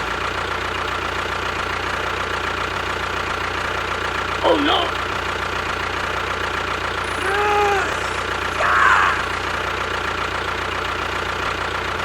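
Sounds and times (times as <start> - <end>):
small motor humming: 7.0 - 9.8.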